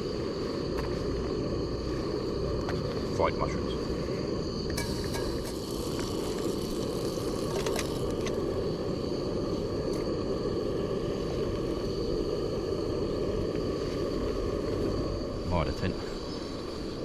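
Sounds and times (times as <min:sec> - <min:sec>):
spirit stove rushing: 0:00.0 - 0:17.0.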